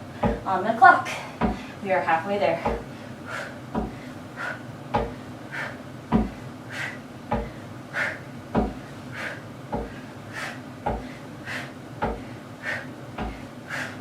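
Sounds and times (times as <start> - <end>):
feet thumping onto wooden box: 0.0 - 0.6, 1.2 - 1.7, 2.6 - 3.0, 3.7 - 4.1, 4.9 - 5.2, 6.1 - 6.4, 7.3 - 7.6, 8.5 - 8.9, 9.7 - 10.0, 10.8 - 11.2, 12.0 - 12.3, 13.2 - 13.5.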